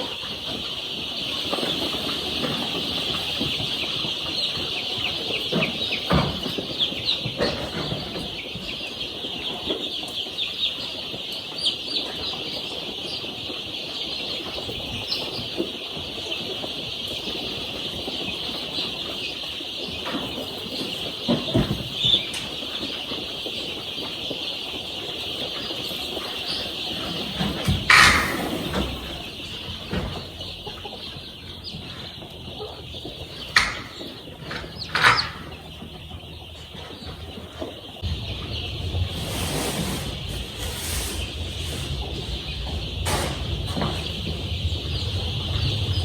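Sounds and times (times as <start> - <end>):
chicks peeping: 0.0 - 46.0
knocks and rustles: 33.5 - 36.0, 38.0 - 46.0.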